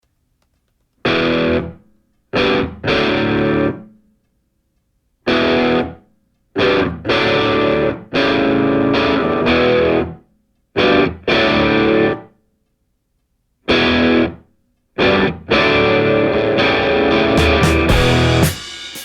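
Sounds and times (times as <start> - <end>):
distorted electric guitar chords: 1.1 - 1.8, 2.4 - 3.8, 5.3 - 6.0, 6.6 - 10.2, 10.8 - 12.3, 13.7 - 14.4, 15.0 - 19.0.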